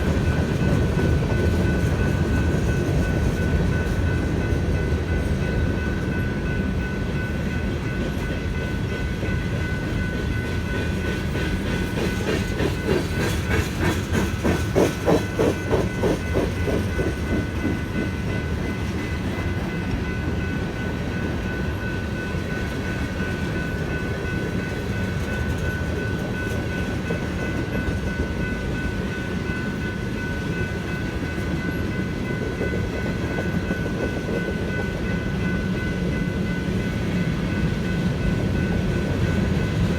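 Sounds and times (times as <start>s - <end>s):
rapid clickety-clack of wheels: 0.0s - 5.4s, 7.6s - 21.4s
train wheels rumbling on rails: 0.0s - 39.9s.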